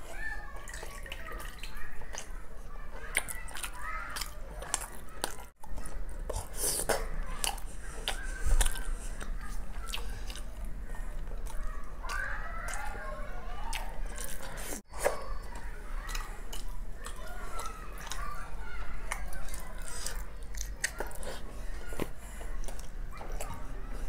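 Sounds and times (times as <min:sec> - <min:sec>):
wet chewing and sucking: 0:03.0 - 0:13.0, 0:16.1 - 0:23.6
squishy mouth clicks: 0:03.1 - 0:13.0, 0:19.1 - 0:23.6.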